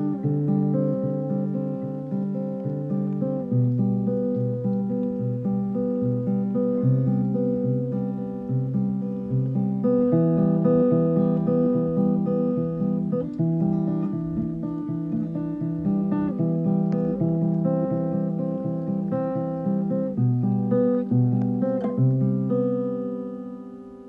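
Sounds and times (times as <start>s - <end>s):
acoustic guitar chords: 0.0s - 24.0s.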